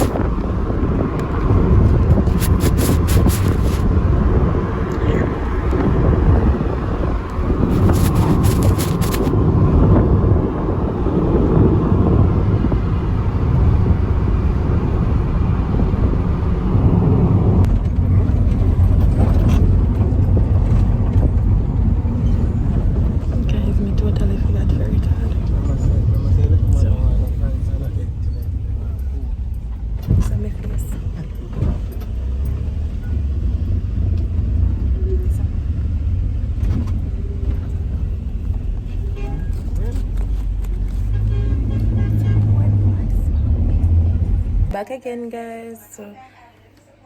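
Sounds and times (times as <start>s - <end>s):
car driving on road rumble: 0.0s - 44.8s.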